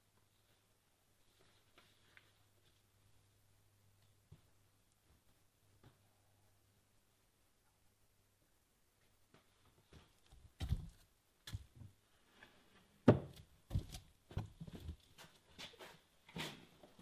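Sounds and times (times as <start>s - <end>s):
irregular knocks and thumps: 10.2s - 12.0s, 13.0s - 15.1s.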